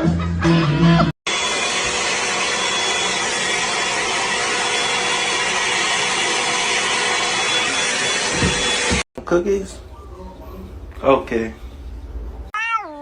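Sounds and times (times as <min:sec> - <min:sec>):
machine rushing with high whine: 0:01.3 - 0:09.0.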